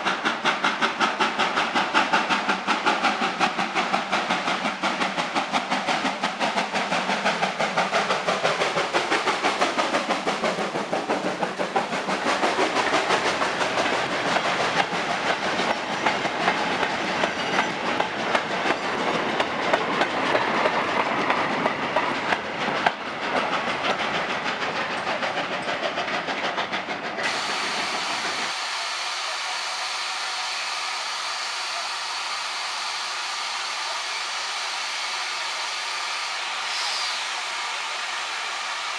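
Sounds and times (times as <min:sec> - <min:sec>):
train clickety-clack: 0:00.0 - 0:30.7.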